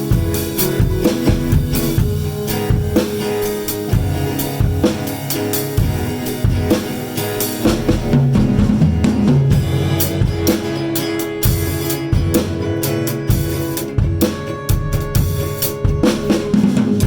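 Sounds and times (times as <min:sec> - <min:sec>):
drum kit beat: 0:00.0 - 0:17.0
electric guitar: 0:00.0 - 0:17.0
keyboards: 0:00.0 - 0:17.0.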